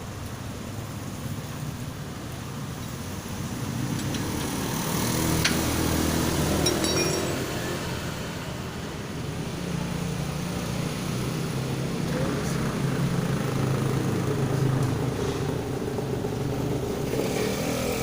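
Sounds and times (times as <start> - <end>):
vehicle engine rumbling: 0.0 - 17.8
short metallic clink: 6.6 - 7.6.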